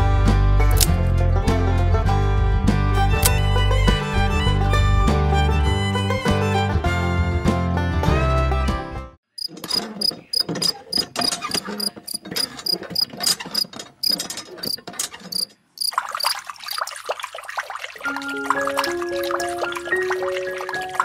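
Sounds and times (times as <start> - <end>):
hand pump clicking: 0.7 - 1.0, 3.2 - 3.4, 9.4 - 15.9
water trickling into a pool: 15.7 - 21.0.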